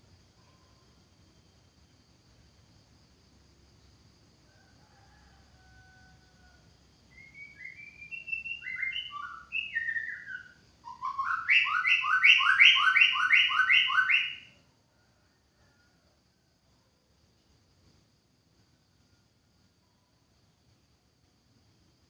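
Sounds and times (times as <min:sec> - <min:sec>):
bird singing whistled phrases: 0:07.2 - 0:14.5.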